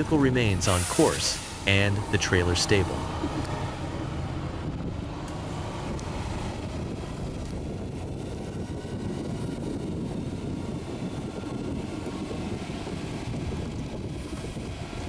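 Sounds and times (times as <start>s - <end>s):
heavy truck engine rumbling: 0.0s - 15.0s.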